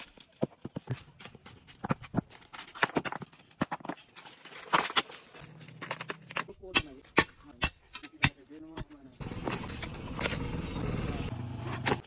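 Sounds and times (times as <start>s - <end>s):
hand tools knocking and scraping: 4.7s - 11.0s.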